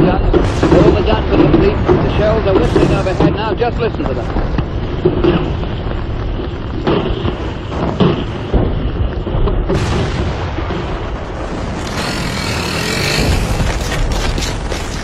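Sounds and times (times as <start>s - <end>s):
rumble of artillery gunfire: 0.0s - 15.0s.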